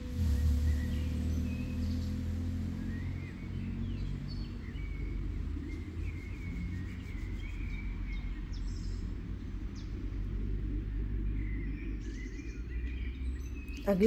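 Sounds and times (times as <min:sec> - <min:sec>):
low background rumble: 0:00.0 - 0:14.0
small birds chirping: 0:00.0 - 0:14.0.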